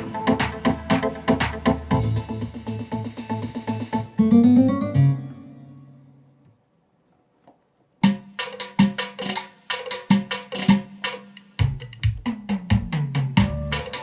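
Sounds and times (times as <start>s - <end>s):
drum and hand-percussion rhythm: 0.0s - 4.2s, 8.0s - 14.0s
bass line: 13.4s - 14.0s.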